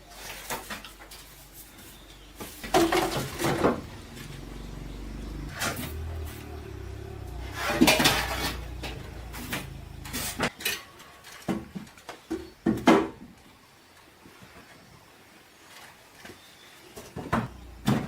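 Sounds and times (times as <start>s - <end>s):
hard objects knocking and clattering: 2.6s - 4.2s
low hum: 2.6s - 10.5s.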